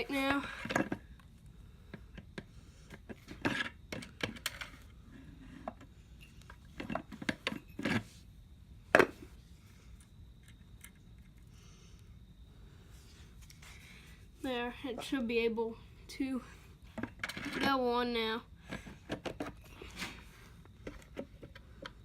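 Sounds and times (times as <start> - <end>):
metal clinks and knocks: 5.6 - 8.1.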